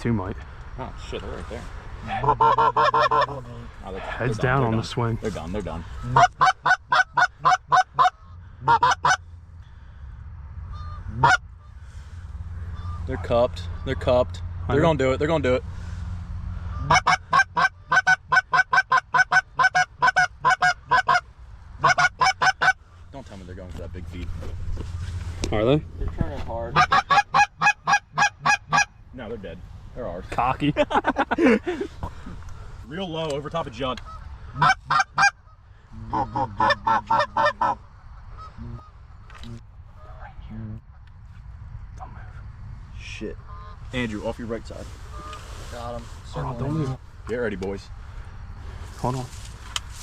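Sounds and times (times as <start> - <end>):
goose call honks and clucks: 1.3 - 9.4, 10.6 - 14.7, 16.5 - 23.0, 26.6 - 29.0, 33.8 - 41.4, 43.4 - 44.1, 44.8 - 47.0.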